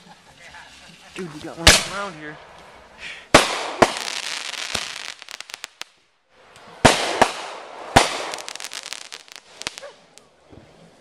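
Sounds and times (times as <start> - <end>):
fireworks hissing and crackling: 0.0 - 11.0
fireworks bangs: 0.7 - 10.2.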